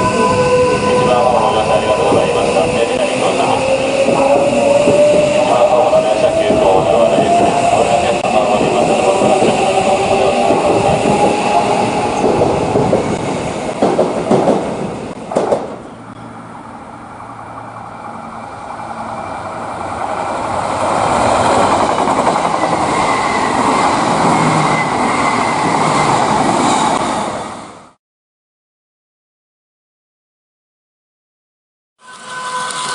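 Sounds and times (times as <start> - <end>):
train wheels clacking on rails: 0.3 - 16.2, 20.9 - 27.1
sharp knocks: 13.8 - 15.9.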